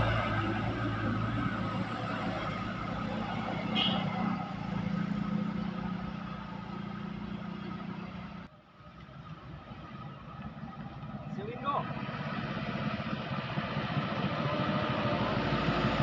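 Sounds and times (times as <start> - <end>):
road noise: 0.0 - 16.0.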